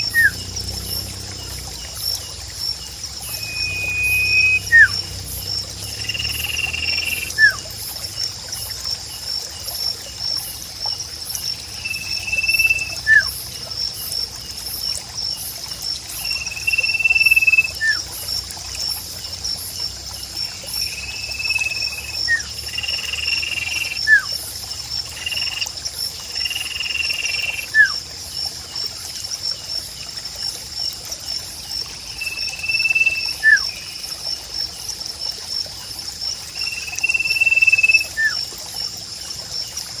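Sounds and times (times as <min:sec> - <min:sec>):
water trickling: 0:00.0 - 0:40.0
whistled bird note: 0:03.3 - 0:05.0.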